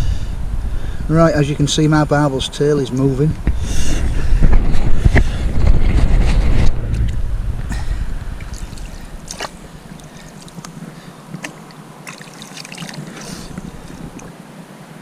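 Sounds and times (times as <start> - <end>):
wind rumbling on microphone: 0.0 - 14.4
river water splashing and trickling: 8.2 - 15.0.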